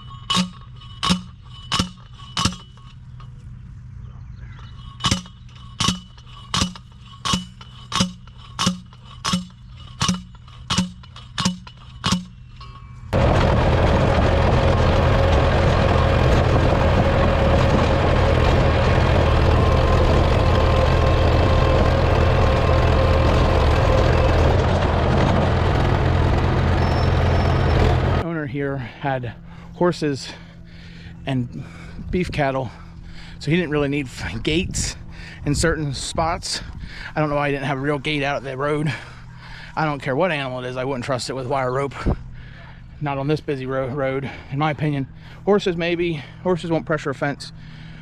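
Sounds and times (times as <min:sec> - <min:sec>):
machine running: 0:00.0 - 0:03.5, 0:04.6 - 0:28.2
sharp knocks: 0:00.3 - 0:02.8, 0:05.0 - 0:12.4.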